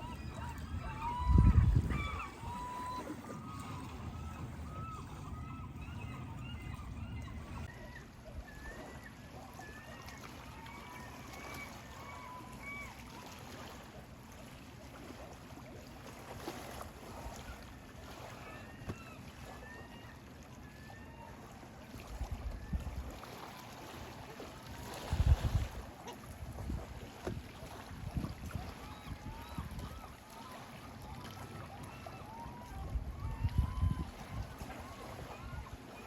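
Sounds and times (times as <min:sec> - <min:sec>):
low steady rumble: 0:00.0 - 0:07.7
water birds whistled calls: 0:00.0 - 0:14.0, 0:15.7 - 0:36.0.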